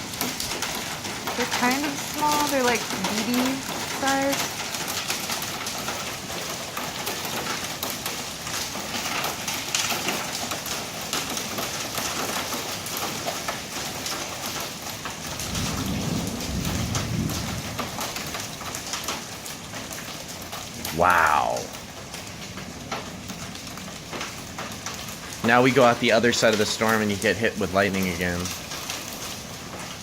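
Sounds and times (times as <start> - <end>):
heavy rain and hail: 0.0 - 30.0
low rumble of thunder: 15.2 - 19.0.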